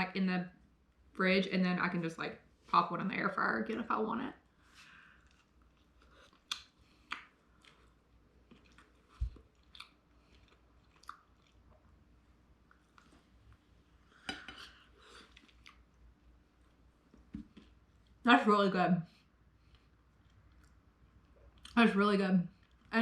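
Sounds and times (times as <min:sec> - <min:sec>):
person chewing crispy food: 0:05.0 - 0:13.6, 0:14.9 - 0:16.0, 0:19.6 - 0:21.8.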